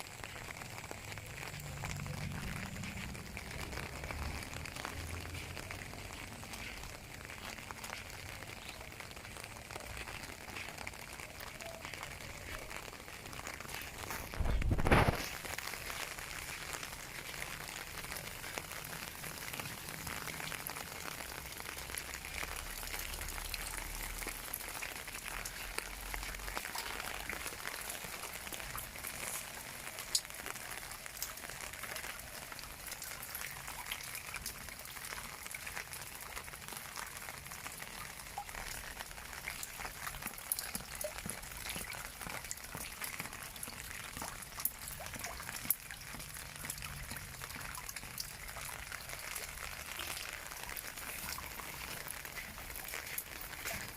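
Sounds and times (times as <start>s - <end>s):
drops pattering and dripping: 0.0s - 53.9s
rain hiss: 0.0s - 53.9s
faint low rumble: 0.4s - 7.7s.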